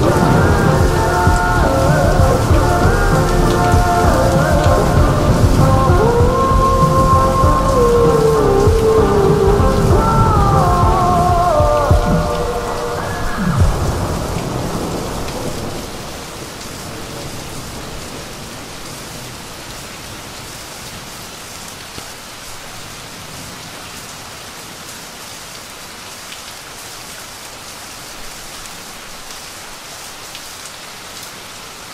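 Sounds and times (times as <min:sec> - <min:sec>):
low rumble: 0:00.0 - 0:15.8
steady rain hiss: 0:00.0 - 0:31.9.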